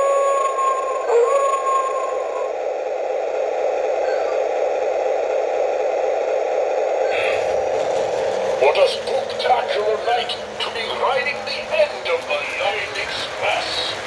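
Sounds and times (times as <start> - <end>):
steady rushing noise: 2.6 - 14.0
held tone: 4.0 - 4.6.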